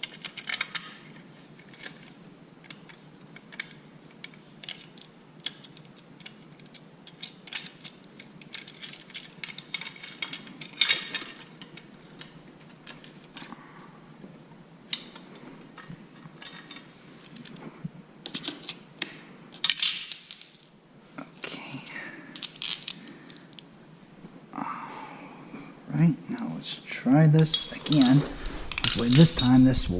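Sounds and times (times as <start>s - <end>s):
metal tools clinking and scraping: 7.1s - 13.5s, 27.4s - 29.9s.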